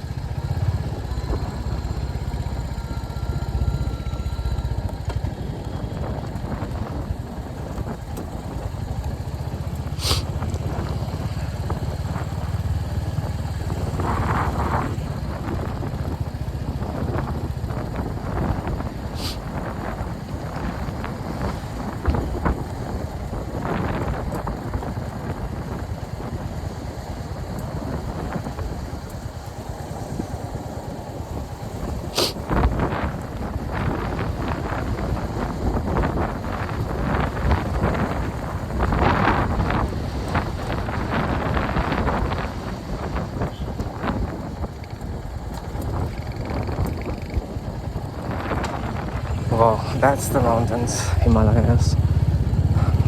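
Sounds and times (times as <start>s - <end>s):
motorcycle engine running: 0.0s - 53.0s
wind on microphone: 0.0s - 53.0s.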